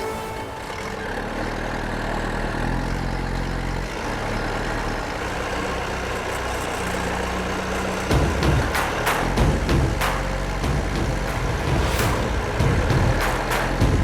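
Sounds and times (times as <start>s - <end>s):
bulldozer diesel engine running: 0.4s - 11.6s.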